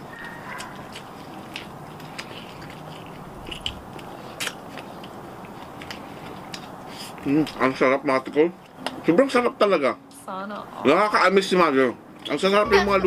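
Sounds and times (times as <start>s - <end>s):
chewing meat off bone: 0.0s - 7.7s
mouth clicks and smacks: 0.2s - 7.6s.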